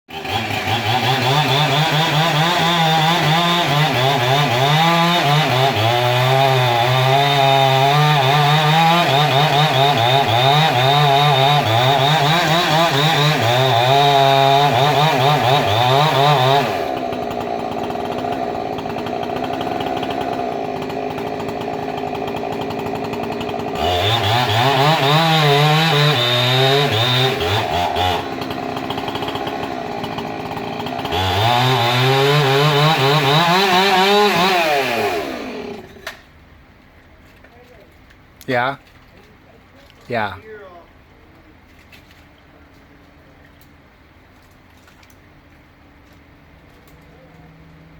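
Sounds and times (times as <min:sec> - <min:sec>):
chainsaw cutting wood: 0:00.1 - 0:36.3.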